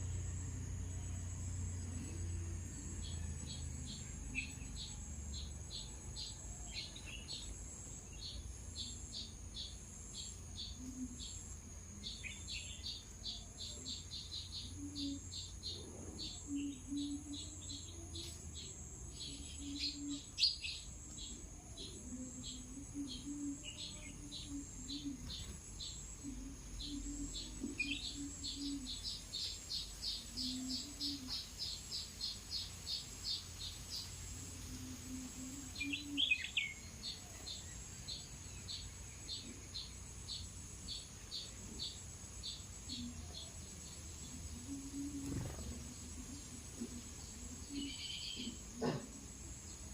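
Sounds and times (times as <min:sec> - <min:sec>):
high-pitched insect drone: 0:00.0 - 0:49.9
small birds chirping: 0:00.0 - 0:49.9.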